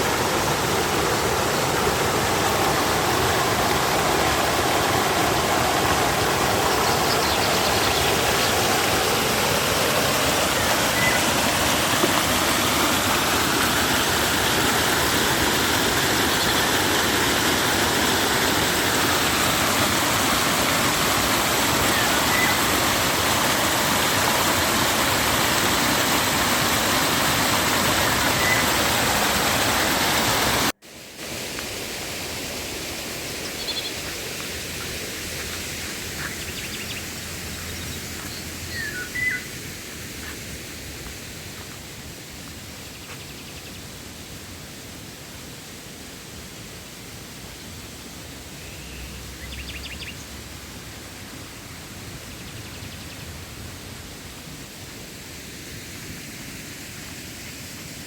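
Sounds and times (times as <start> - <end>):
river water rushing: 0.0 - 42.8.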